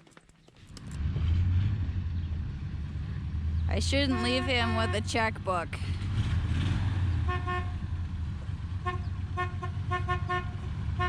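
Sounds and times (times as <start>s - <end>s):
low engine rumble: 0.6s - 11.0s
vehicle horn honking: 3.9s - 5.3s, 7.2s - 7.8s, 8.8s - 11.0s.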